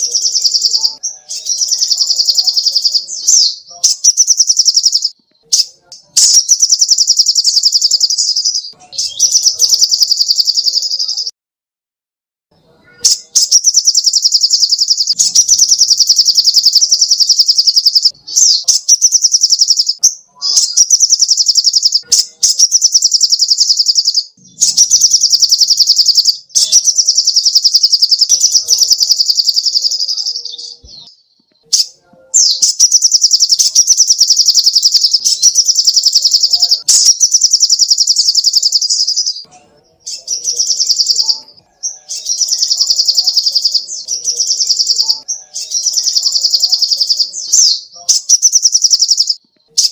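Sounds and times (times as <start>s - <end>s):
bird singing fast high trills: 0.0s - 5.2s, 13.1s - 30.8s, 31.8s - 39.4s.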